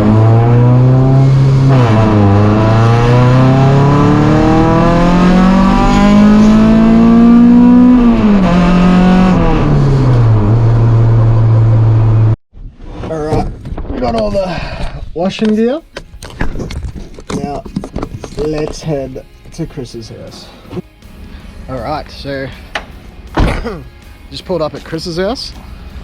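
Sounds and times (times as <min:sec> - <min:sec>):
car engine accelerating: 0:00.0 - 0:12.4.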